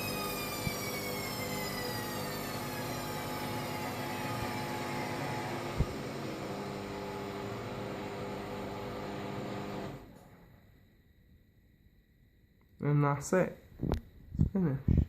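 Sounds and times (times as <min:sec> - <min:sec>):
washing machine whine: 0:00.0 - 0:11.0.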